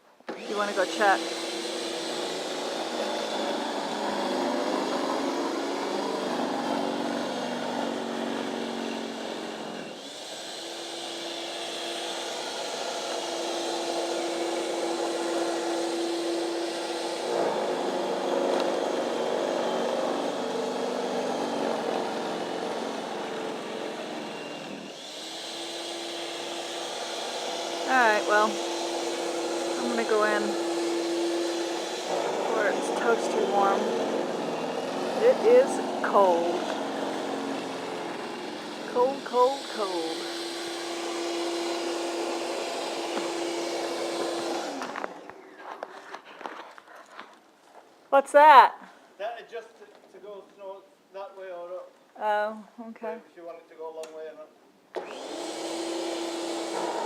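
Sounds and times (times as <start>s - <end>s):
snow blower engine running: 0.3s - 45.3s.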